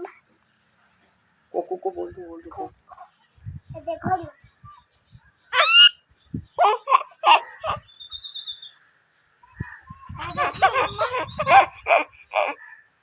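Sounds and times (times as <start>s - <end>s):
parrot calls: 5.5s - 6.0s, 6.6s - 8.5s, 9.8s - 12.7s
child laughing: 5.6s - 5.9s, 6.6s - 7.8s, 10.0s - 12.6s.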